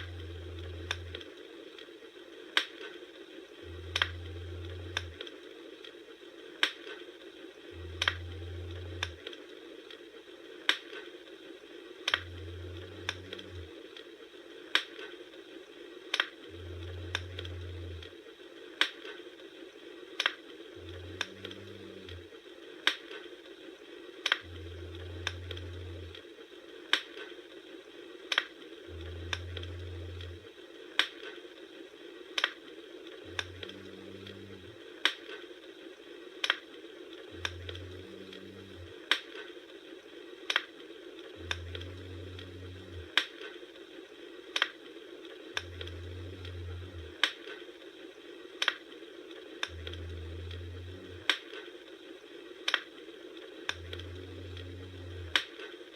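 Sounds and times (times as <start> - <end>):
low rumble: 0.0 - 1.4, 3.6 - 5.3, 7.6 - 9.4, 12.1 - 13.8, 16.4 - 18.2, 20.8 - 22.3, 24.4 - 26.2, 28.9 - 30.6, 33.1 - 34.8, 37.2 - 39.1, 41.2 - 43.2, 45.5 - 47.2, 49.6 - 51.3, 53.7 - 55.4
wood fire crackling: 0.0 - 55.9.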